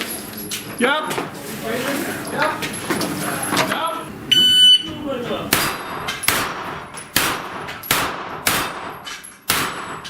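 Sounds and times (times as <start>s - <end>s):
gunshots with echo: 5.5s - 10.0s.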